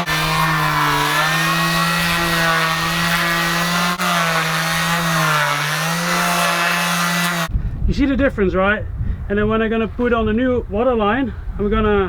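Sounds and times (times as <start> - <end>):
power sander sanding: 0.0 - 7.5.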